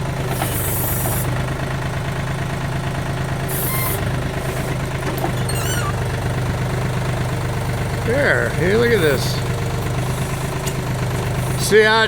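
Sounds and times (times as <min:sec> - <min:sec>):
backhoe diesel engine running: 0:00.0 - 0:12.0
high squeaks: 0:03.5 - 0:06.1.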